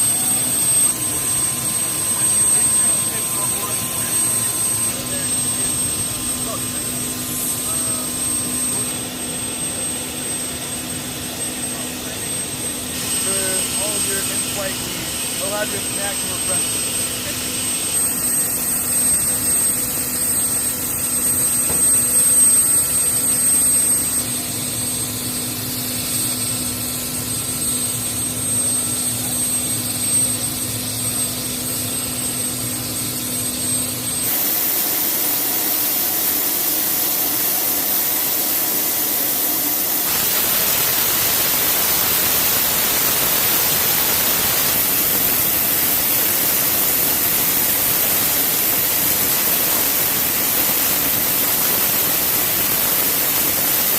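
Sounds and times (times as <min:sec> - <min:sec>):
helicopter turbine and rotor: 0:00.0 - 0:53.9
steady rushing hiss: 0:40.0 - 0:53.9.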